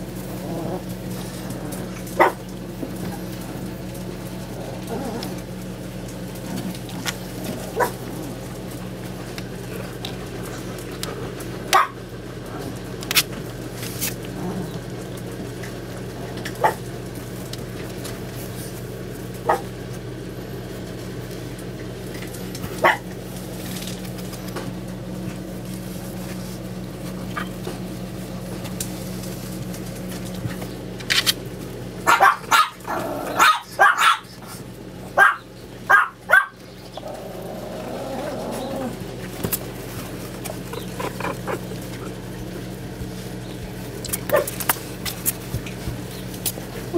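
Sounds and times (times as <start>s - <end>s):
steady low hum: 0.0s - 46.9s
puppies yipping and barking: 0.6s - 3.8s, 7.1s - 8.1s, 11.7s - 12.0s, 22.8s - 23.1s, 32.0s - 46.9s.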